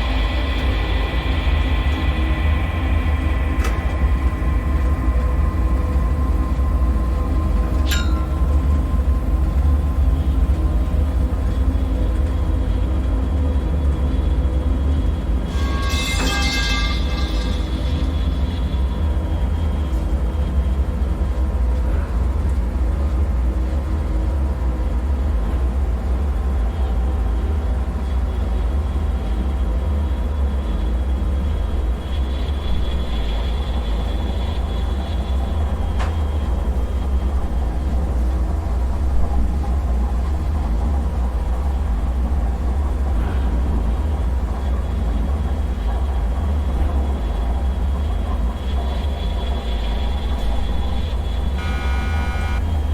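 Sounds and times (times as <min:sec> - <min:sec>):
deep rumbling drone: 0:00.0 - 0:15.6, 0:26.3 - 0:52.9
faint humming tones: 0:00.0 - 0:52.9.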